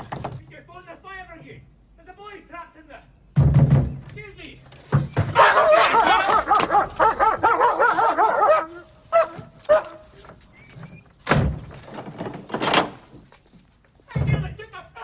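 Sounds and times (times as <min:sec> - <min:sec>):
heavy thump: 0:03.4 - 0:04.2
dog barking: 0:05.4 - 0:10.2.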